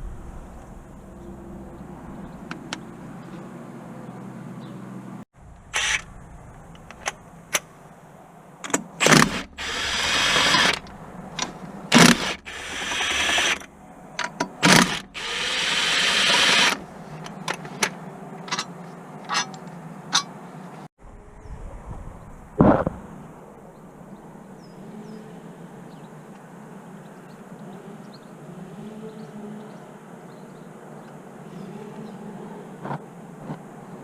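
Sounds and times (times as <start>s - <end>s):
noisy power tool bursts: 5.7s - 6.1s, 9.0s - 10.9s, 11.9s - 13.7s, 14.6s - 16.8s.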